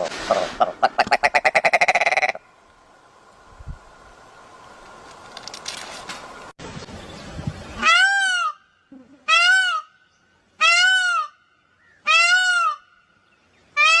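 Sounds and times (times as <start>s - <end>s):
bird calling: 0.2s - 2.5s.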